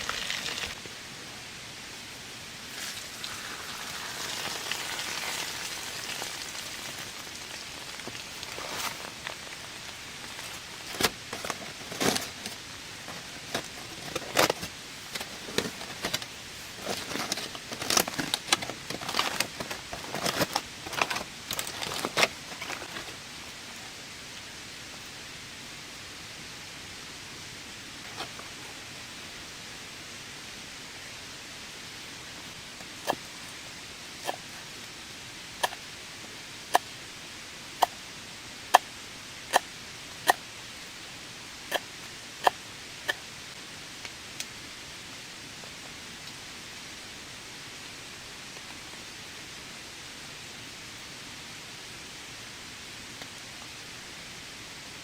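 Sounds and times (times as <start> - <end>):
rain hissing: 0.0 - 55.0
irregular clicks and rustles: 6.0 - 23.3.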